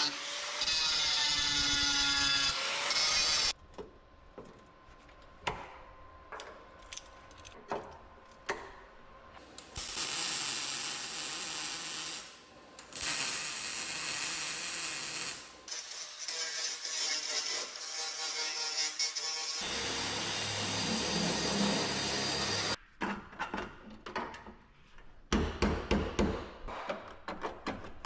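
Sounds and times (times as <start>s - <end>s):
power tool running: 19.6s - 22.8s.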